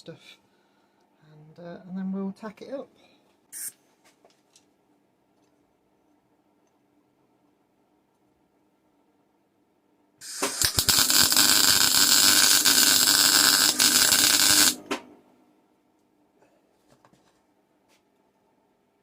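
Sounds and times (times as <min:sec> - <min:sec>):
welding arc crackling hiss: 0:10.2 - 0:14.9.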